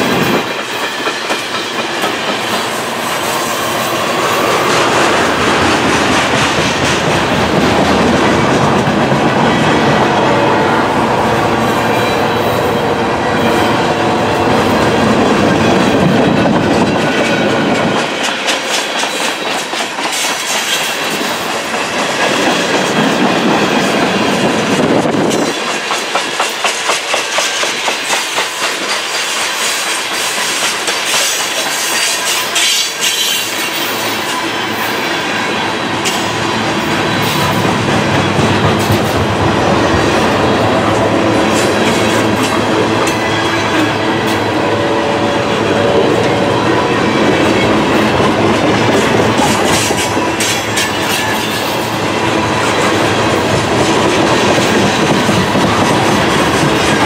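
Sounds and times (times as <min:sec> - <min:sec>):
train wheels rumbling on rail: 0:00.0 - 0:57.0
wheels clacking over rail joints: 0:13.3 - 0:57.0.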